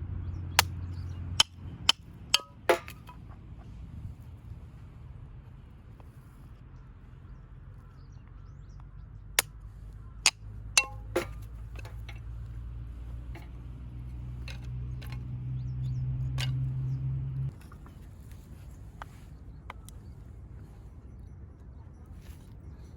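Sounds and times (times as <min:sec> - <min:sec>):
sharp knocks and clinks: 0:01.4 - 0:03.2, 0:10.3 - 0:12.3
metallic ring: 0:10.8 - 0:12.0.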